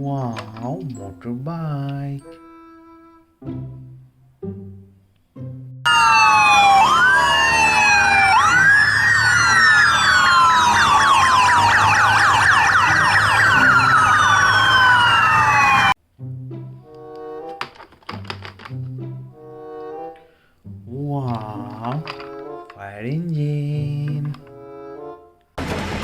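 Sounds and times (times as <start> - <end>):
sirens wailing: 5.9 - 16.0.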